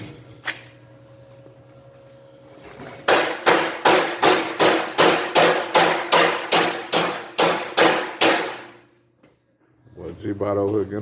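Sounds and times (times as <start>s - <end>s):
hammer striking metal: 3.1s - 8.8s.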